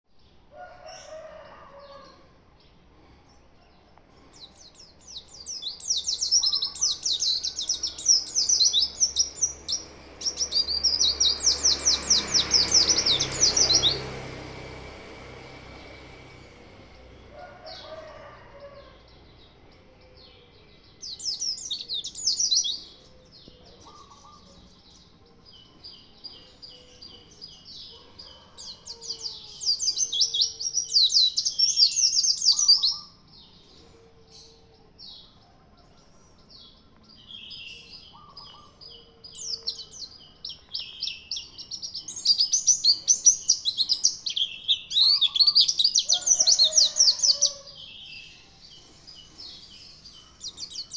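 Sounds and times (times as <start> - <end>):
bird chattering twitter: 38.0 - 47.2.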